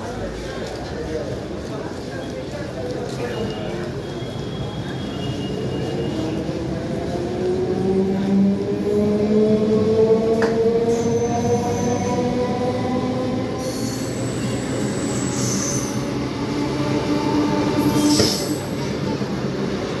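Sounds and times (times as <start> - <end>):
steady train tones: 5.7 - 20.0.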